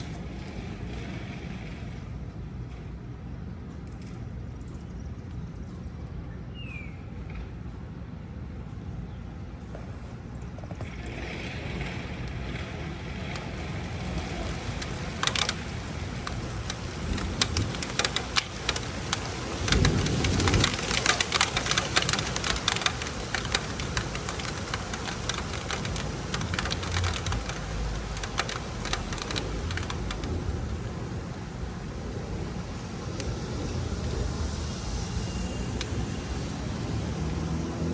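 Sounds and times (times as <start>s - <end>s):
raindrops pattering: 13.6s - 36.6s.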